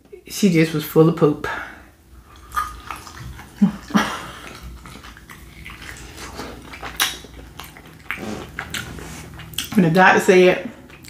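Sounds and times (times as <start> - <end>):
chewing with wet mouth sounds: 2.2 - 11.0.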